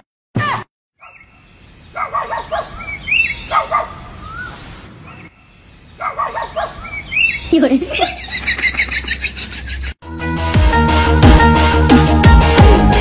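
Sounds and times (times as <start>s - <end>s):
birds chirping: 1.0s - 10.0s.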